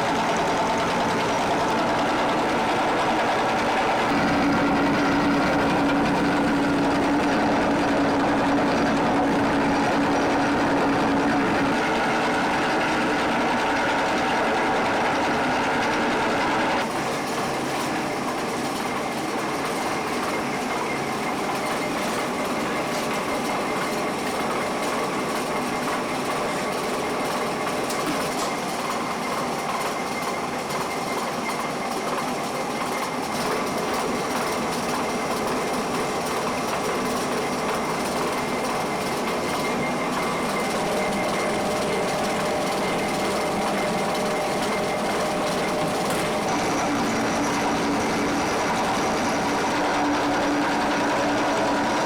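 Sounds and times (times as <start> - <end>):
factory machinery running: 0.0 - 52.0.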